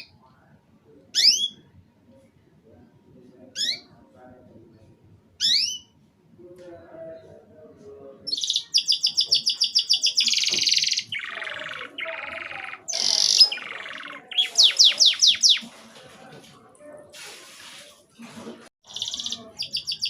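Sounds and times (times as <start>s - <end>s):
canary singing: 1.1s - 1.6s, 3.5s - 4.0s, 5.4s - 6.0s, 8.2s - 15.8s, 18.8s - 20.0s.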